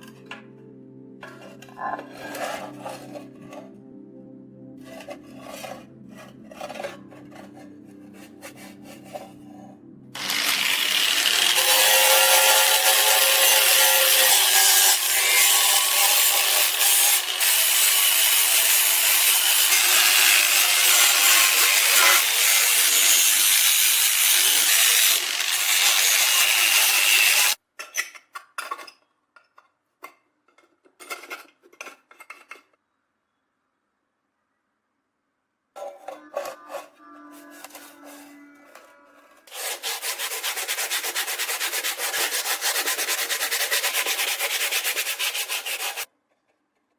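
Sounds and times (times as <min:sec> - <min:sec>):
knife scraping on abrasive: 0:01.2 - 0:03.8, 0:04.8 - 0:17.9, 0:35.8 - 0:46.1.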